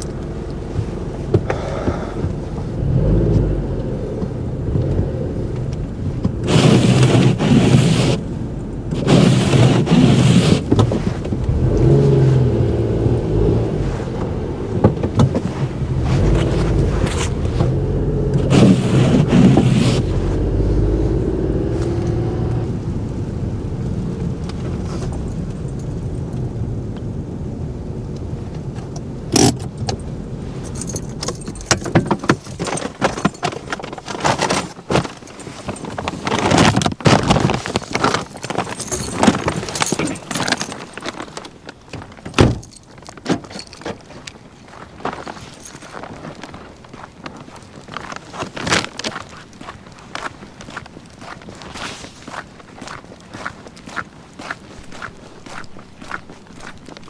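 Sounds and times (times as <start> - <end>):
truck engine idling: 0.0 - 6.5, 11.4 - 31.7
scraping and rattling handling noise: 5.6 - 22.8, 28.8 - 49.5.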